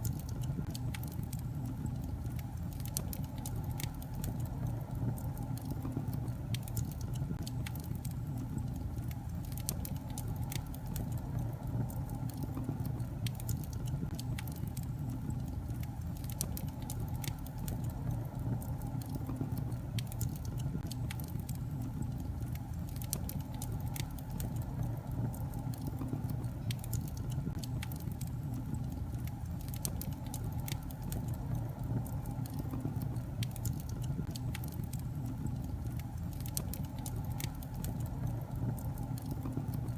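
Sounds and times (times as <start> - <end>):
fire flames rushing: 0.0 - 39.9
logs crackling and popping: 0.0 - 39.9.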